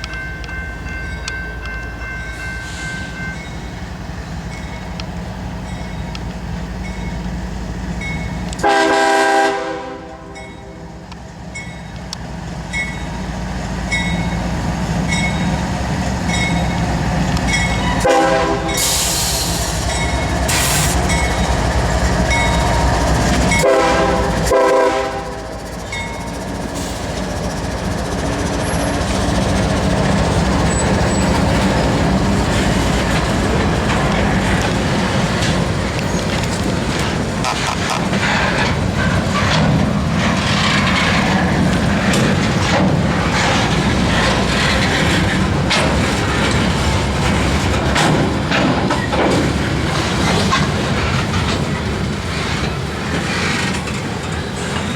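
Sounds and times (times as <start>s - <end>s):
train rumble: 0.0s - 54.9s
locomotive horn blasts: 8.5s - 10.8s, 17.8s - 19.1s, 23.5s - 25.5s.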